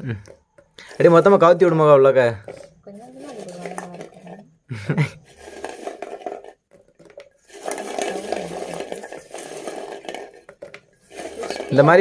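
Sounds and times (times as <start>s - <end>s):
syrup pouring into plastic bucket: 5.2s - 12.0s.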